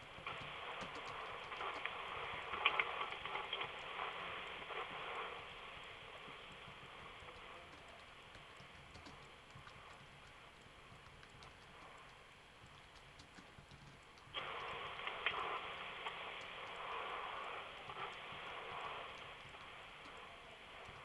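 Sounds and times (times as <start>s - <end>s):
soft scratching hiss: 0.0s - 21.0s.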